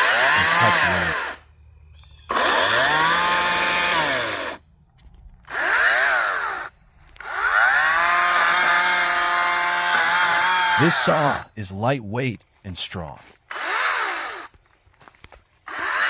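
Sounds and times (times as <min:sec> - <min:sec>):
electric chainsaw motor whine: 0:00.0 - 0:01.4, 0:02.3 - 0:04.6, 0:05.5 - 0:11.5, 0:13.5 - 0:14.6, 0:15.6 - 0:16.0.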